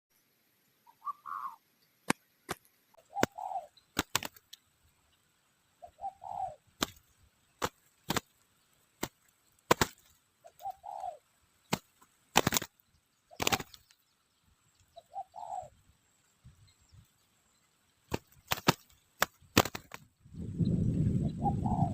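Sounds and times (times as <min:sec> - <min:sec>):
dove cooing: 0:00.9 - 0:01.6, 0:03.0 - 0:04.4, 0:05.8 - 0:07.0, 0:09.7 - 0:11.3, 0:13.3 - 0:13.8, 0:14.9 - 0:15.8, 0:21.1 - 0:21.9
sharp clicks and snaps: 0:02.0 - 0:04.6.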